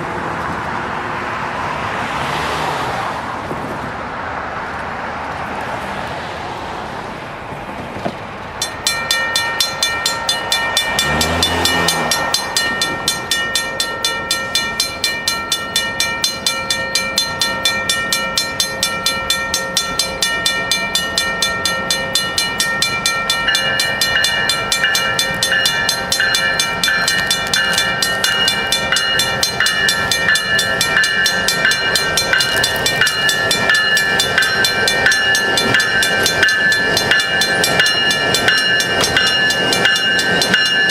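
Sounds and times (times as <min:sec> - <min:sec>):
railroad crossing bells ringing: 0:08.3 - 0:40.9.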